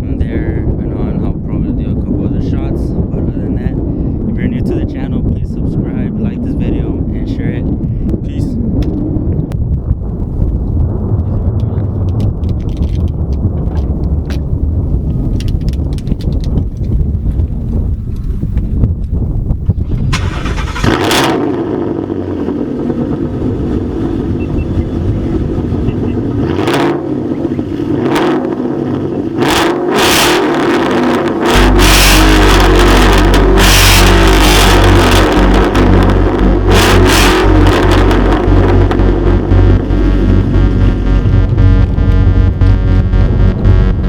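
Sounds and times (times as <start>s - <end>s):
wind gusts on microphone: 0.0s - 44.0s
car engine running: 20.1s - 44.0s.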